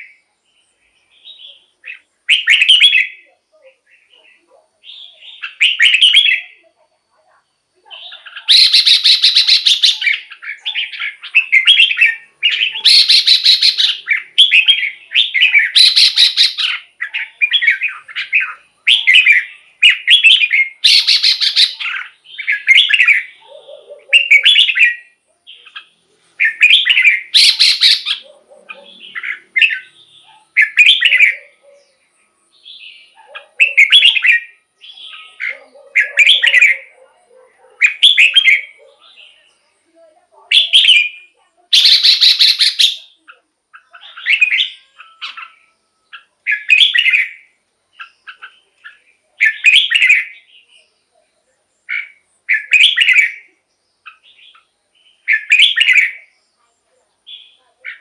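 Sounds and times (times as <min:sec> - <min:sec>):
bird singing chirpy whistles: 0:01.2 - 0:03.2, 0:08.4 - 0:23.3, 0:26.4 - 0:28.2, 0:41.8 - 0:43.1.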